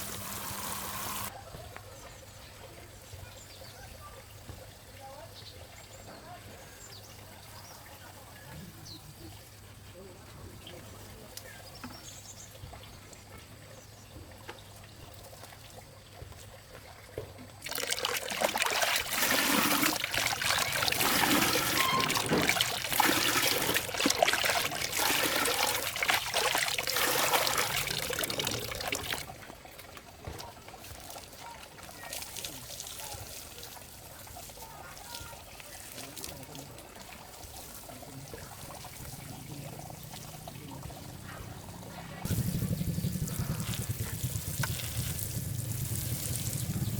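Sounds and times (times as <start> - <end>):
water pouring and splashing: 0.0 - 1.3, 14.2 - 46.9.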